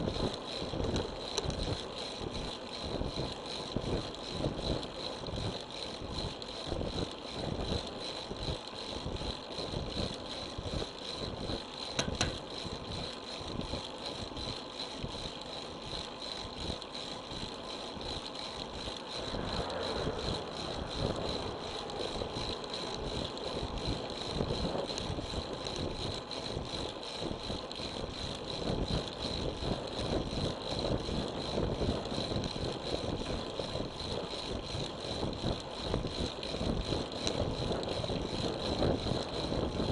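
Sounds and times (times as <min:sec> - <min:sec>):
bicycle rattling: 0:00.0 - 0:39.9
wind buffeting microphone: 0:18.7 - 0:39.9.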